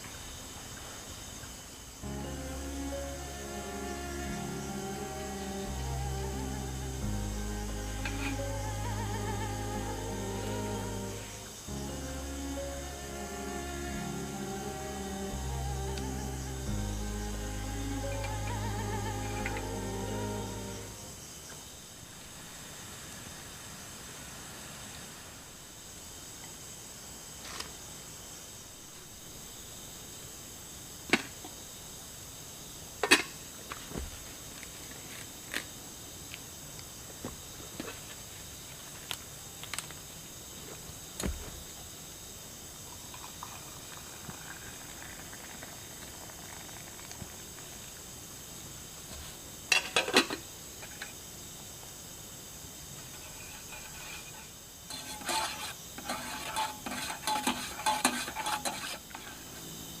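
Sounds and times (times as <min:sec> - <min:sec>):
forest insect chorus: 0:00.0 - 1:00.0
utensil clinking against pot: 0:54.9 - 0:59.2.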